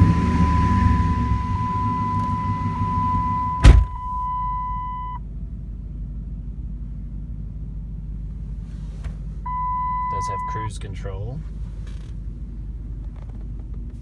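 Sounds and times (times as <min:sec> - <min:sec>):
truck door slamming: 0:00.0 - 0:04.3
dashboard warning chime: 0:00.0 - 0:05.2, 0:09.5 - 0:10.8
truck engine idling: 0:00.0 - 0:08.6.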